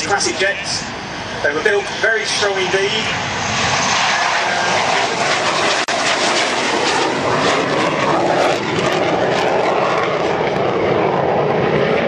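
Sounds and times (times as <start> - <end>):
jet aircraft flying over: 0.0 - 12.0.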